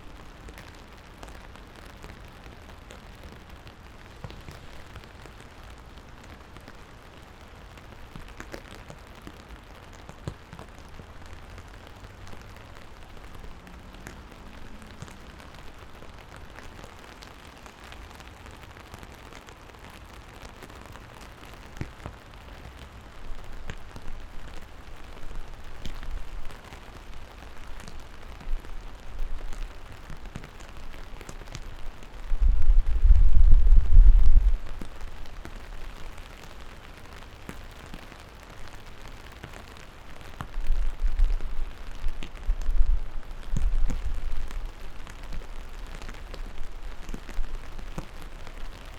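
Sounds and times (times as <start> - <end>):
raindrops tapping close by: 0.0 - 48.9
steady rain falling: 0.0 - 48.9
low rumble: 32.3 - 34.8.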